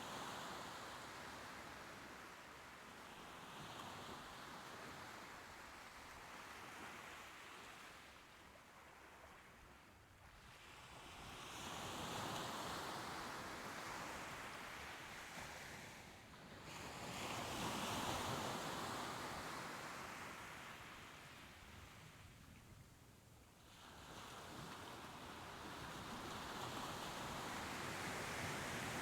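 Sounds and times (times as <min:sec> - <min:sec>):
soft ocean waves washing ashore: 0:00.0 - 0:29.0.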